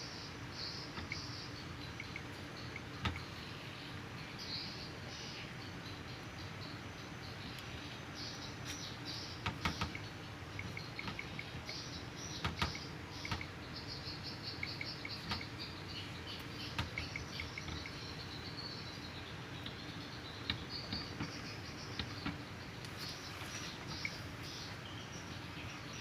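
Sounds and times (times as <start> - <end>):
small birds twittering: 0.0 - 26.0.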